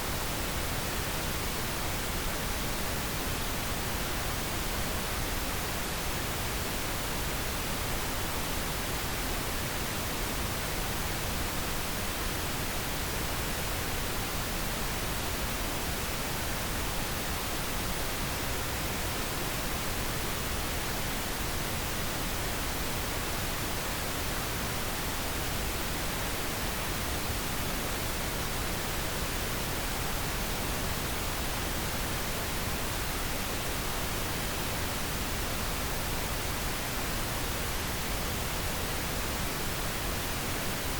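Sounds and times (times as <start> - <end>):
pink noise hiss: 0.0 - 40.9.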